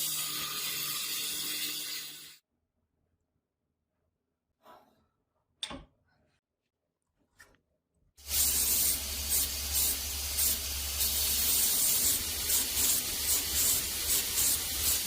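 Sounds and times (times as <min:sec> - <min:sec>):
hissing spray: 0:08.2 - 0:15.0.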